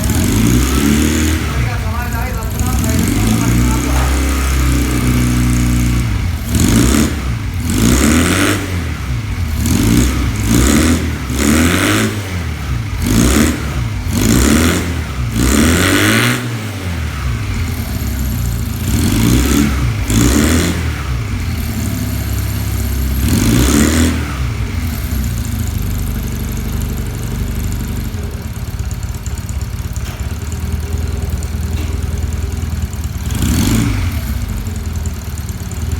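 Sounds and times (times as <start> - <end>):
motorcycle engine revving and idling: 0.0 - 35.9.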